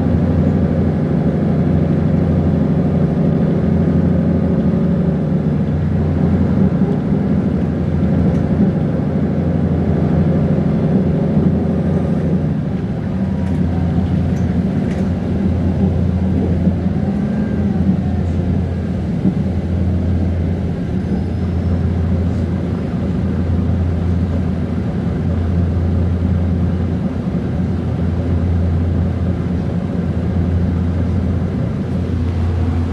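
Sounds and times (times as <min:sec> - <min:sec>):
bus diesel engine running: 0:00.0 - 0:32.9.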